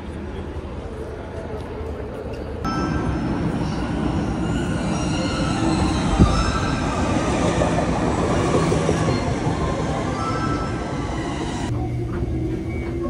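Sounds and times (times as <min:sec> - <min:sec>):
train running on rails: 0:00.0 - 0:13.0
high wheel squeal: 0:02.9 - 0:11.7.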